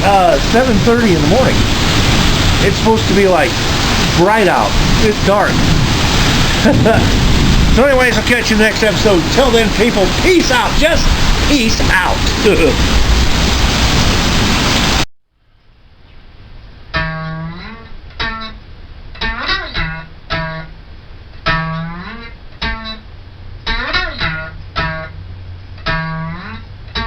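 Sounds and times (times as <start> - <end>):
steady rain: 0.0 - 15.1
plucked acoustic guitar music: 16.9 - 18.6, 19.2 - 20.7, 21.4 - 23.0, 23.6 - 27.0.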